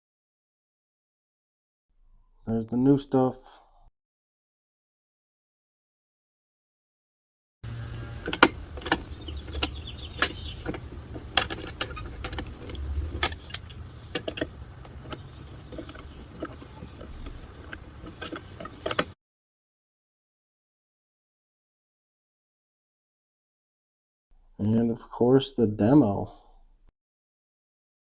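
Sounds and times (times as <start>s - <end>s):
sharp knocks and clicks: 7.9s - 19.2s.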